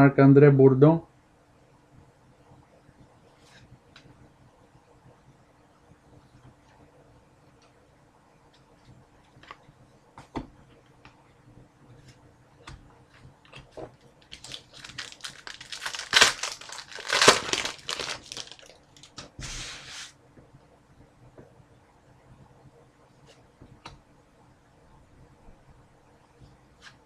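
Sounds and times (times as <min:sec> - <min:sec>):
cards clicking and rustling: 0:13.5 - 0:19.2
wrapper crinkling and tearing: 0:14.2 - 0:19.3.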